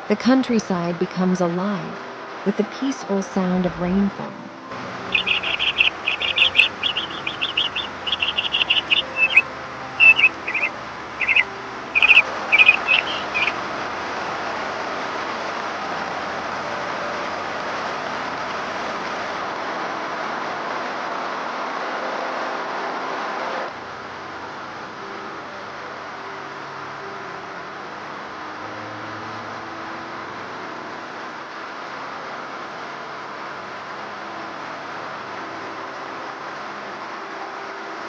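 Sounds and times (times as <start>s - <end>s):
rainfall hiss: 0.0s - 21.7s
bird chirping: 5.0s - 13.6s.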